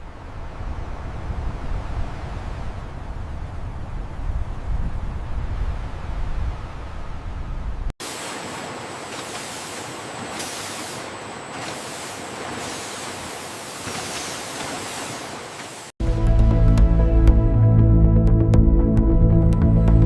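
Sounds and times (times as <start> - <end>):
steady hiss: 8.0 - 15.9.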